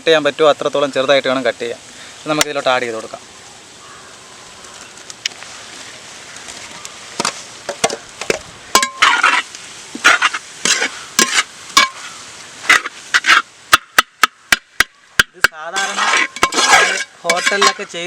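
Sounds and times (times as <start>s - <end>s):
faint sizzle: 0.0s - 13.7s
metal spatula scraping a frying pan: 8.7s - 13.5s, 15.8s - 18.0s.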